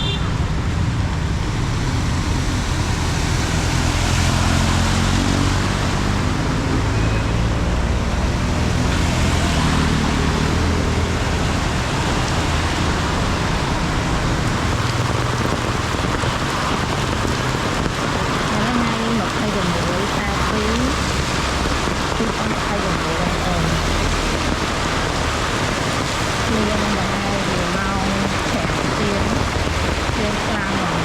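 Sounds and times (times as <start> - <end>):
heavy rain hissing: 8.8 - 31.0.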